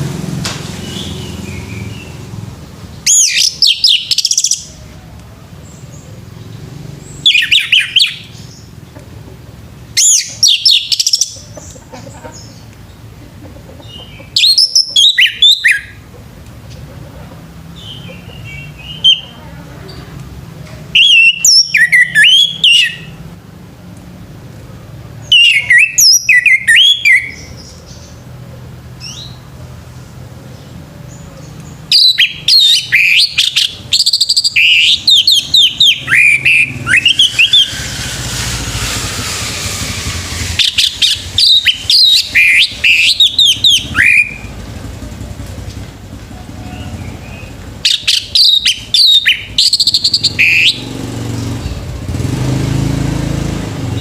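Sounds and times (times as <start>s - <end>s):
thrush singing whistled phrases: 3.1s - 4.7s, 7.1s - 8.5s, 10.0s - 11.4s, 14.2s - 16.0s, 18.0s - 19.3s, 20.9s - 23.2s, 25.2s - 27.5s, 31.9s - 44.6s, 46.7s - 51.6s
rushing noise: 35.0s - 45.1s.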